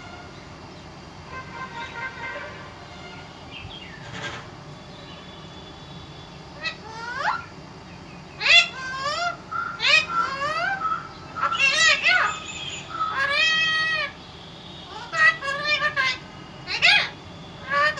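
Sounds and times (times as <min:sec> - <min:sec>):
parrot squawking: 0:06.6 - 0:07.5, 0:08.4 - 0:14.2, 0:14.8 - 0:17.9.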